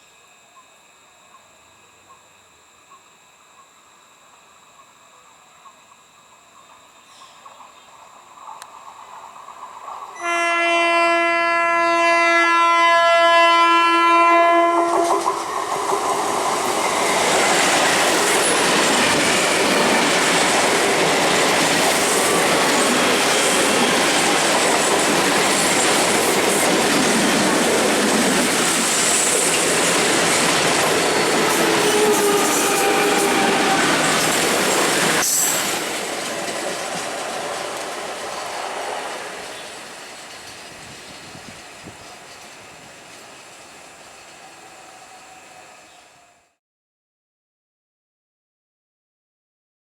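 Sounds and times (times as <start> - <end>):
train horn blast: 10.2 - 15.3, 31.4 - 34.1
train wheels rushing on rails: 14.6 - 46.0.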